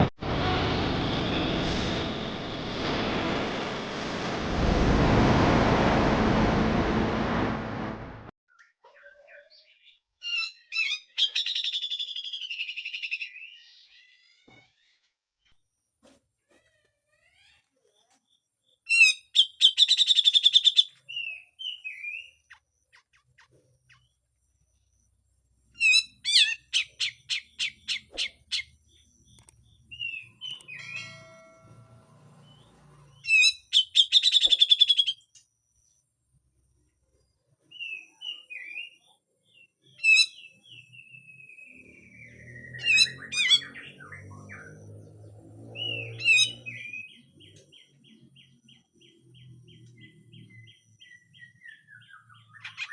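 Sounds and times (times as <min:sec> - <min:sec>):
bird chirps: 0:17.2 - 0:25.2, 0:25.8 - 0:36.0, 0:37.2 - 0:52.9
bird harsh rasping calls: 0:42.8 - 0:43.8.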